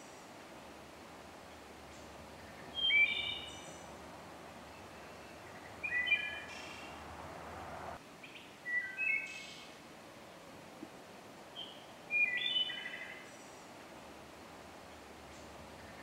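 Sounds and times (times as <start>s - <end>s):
background hiss: 0.0s - 16.0s
songbird whistling: 2.6s - 3.9s, 4.7s - 7.0s, 11.6s - 13.0s.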